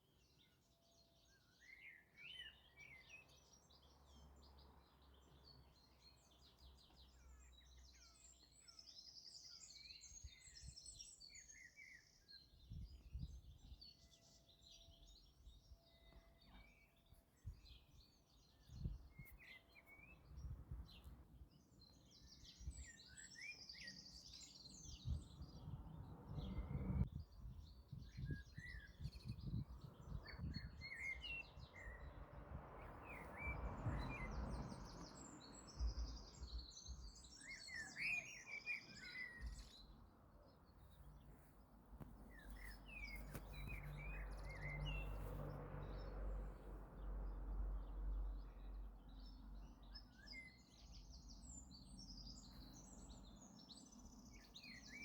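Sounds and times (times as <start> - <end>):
small birds chirping: 0.0 - 55.0
low rumbling microphone noise: 25.0 - 30.8.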